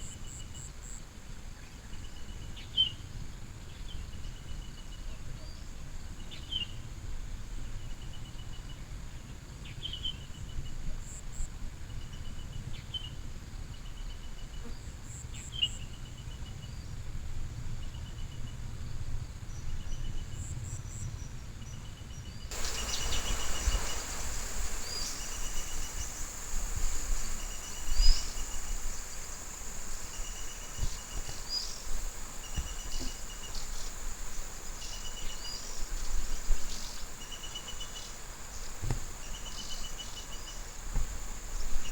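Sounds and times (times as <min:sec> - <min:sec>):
background hiss: 0:22.5 - 0:41.9
bird chirps: 0:22.5 - 0:41.9
high insect whine: 0:22.5 - 0:41.9
insect pulsed trills: 0:22.5 - 0:41.9
single thump: 0:38.8 - 0:39.1.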